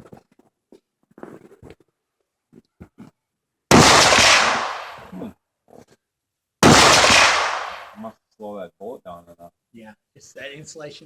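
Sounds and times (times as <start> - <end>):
rifle shot with echo: 3.7 - 5.1, 6.6 - 8.0.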